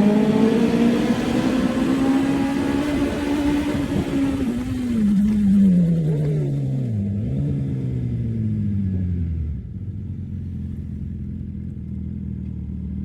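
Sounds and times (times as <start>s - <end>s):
motorcycle passing in tunnel: 0.0s - 13.0s.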